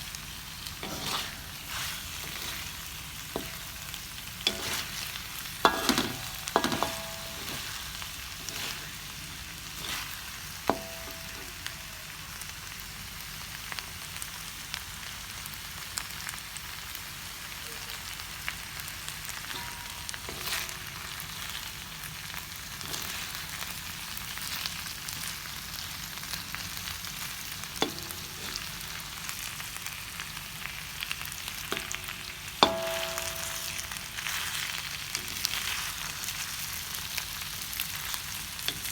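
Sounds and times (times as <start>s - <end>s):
food sizzling in oil: 0.0s - 38.9s
metal utensil scraping a pan: 0.6s - 11.7s, 19.4s - 21.5s, 22.8s - 23.4s, 27.8s - 29.0s, 31.7s - 36.1s, 38.6s - 38.9s
ringing knocks: 32.6s - 34.1s.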